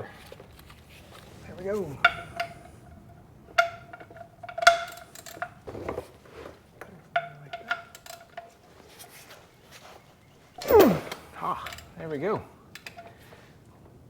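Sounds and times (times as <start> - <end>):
small metal clicks: 3.6 - 5.6, 7.2 - 8.6
short metal scrape: 10.6 - 11.4.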